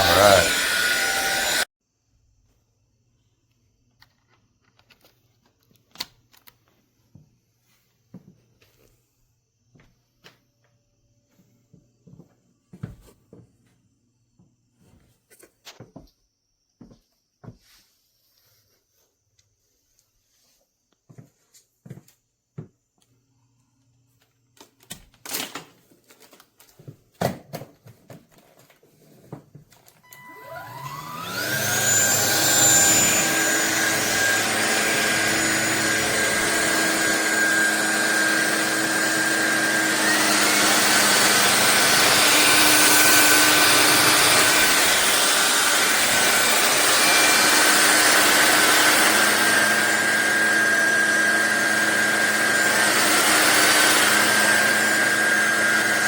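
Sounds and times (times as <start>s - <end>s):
vacuum cleaner motor whining: 0.0s - 1.7s, 29.0s - 56.0s.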